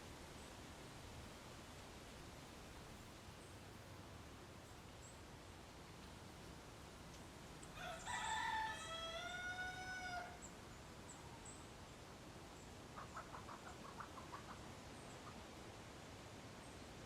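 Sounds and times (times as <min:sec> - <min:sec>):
rooster crowing: 0:07.7 - 0:10.5
chicken clucking: 0:13.0 - 0:14.6.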